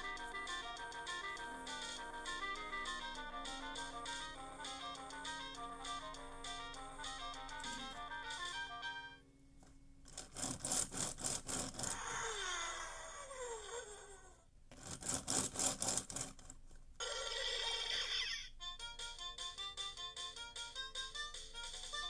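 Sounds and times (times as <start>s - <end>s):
toy car clattering rattle: 10.1s - 12.0s, 14.7s - 16.6s.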